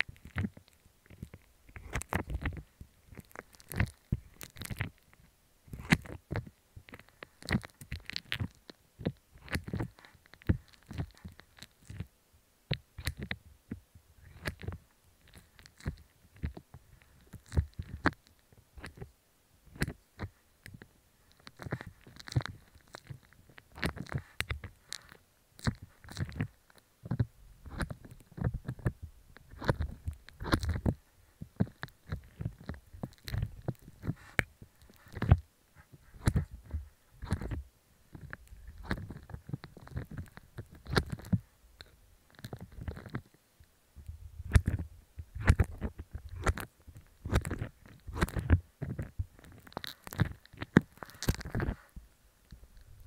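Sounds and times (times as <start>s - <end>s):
slime squelching: 0.0s - 5.0s, 5.7s - 12.1s, 21.3s - 43.3s, 44.4s - 52.0s.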